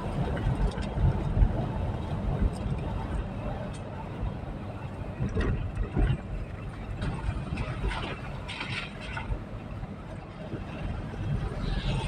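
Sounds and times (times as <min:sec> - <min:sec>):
vehicle rumbling: 0:00.0 - 0:12.0.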